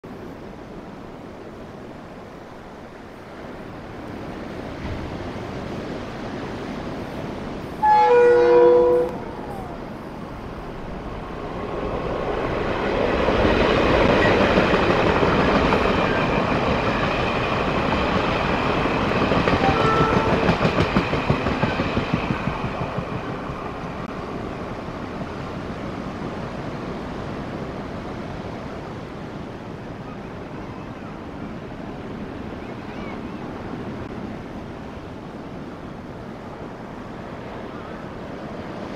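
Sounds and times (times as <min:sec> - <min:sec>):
train wheels rumbling on rails: 0:01.2 - 0:30.8
clickety-clack over rail joints: 0:04.0 - 0:05.7, 0:11.8 - 0:24.2
train horn blast: 0:07.8 - 0:09.8, 0:19.6 - 0:20.6.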